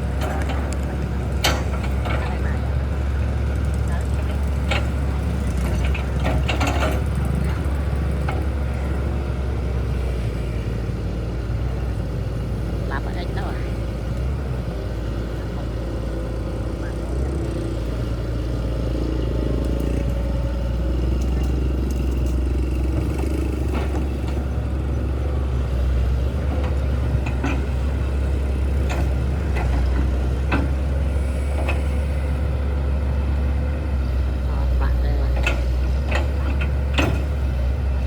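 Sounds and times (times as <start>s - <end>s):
low engine rumble: 0.0s - 38.0s
sharp clicks and knocks: 0.2s - 2.3s.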